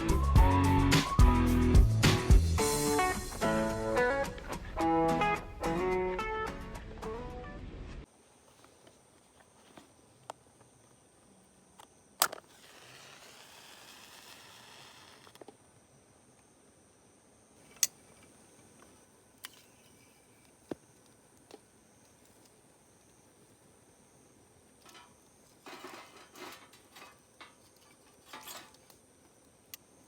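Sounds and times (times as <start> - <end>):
soft hiss: 8.0 - 30.0.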